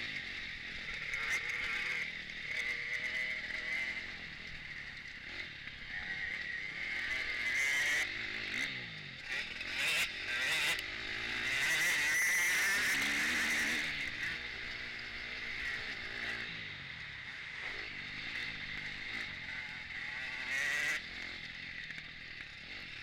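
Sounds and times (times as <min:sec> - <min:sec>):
motocross bike engine revving: 0:00.0 - 0:23.0.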